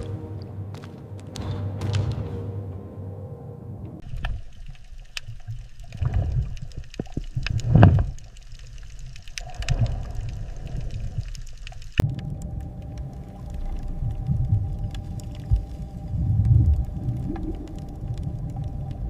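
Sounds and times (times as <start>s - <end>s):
sharp underwater clicks: 4.0s - 19.0s
underwater churning water: 4.0s - 19.0s.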